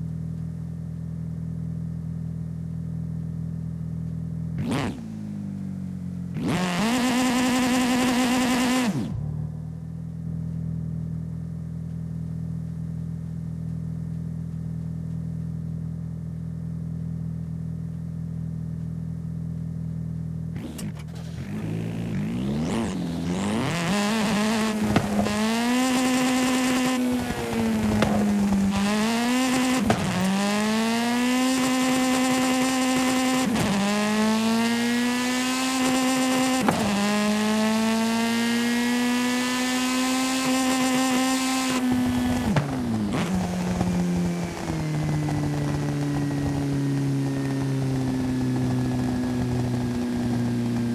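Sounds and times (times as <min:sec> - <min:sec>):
video game car engine revving: 0:03.0 - 0:11.3, 0:20.0 - 0:50.9.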